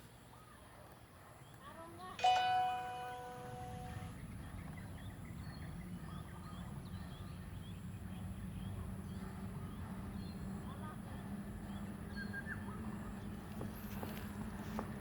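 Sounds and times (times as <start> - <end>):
struck metal chime ringing: 2.2 - 4.1.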